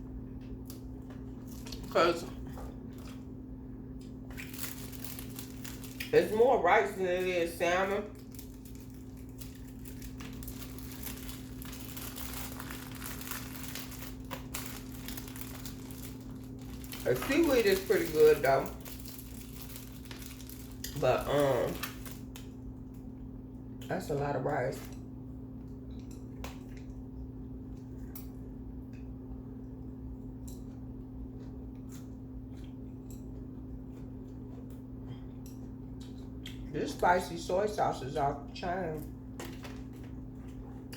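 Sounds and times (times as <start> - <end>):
steady low hum: 0.0 - 40.9
chewing mouth clicks and squishes: 0.4 - 6.2, 24.8 - 29.1, 30.1 - 36.8
chewing mouth clicks and smacks: 30.4 - 36.7.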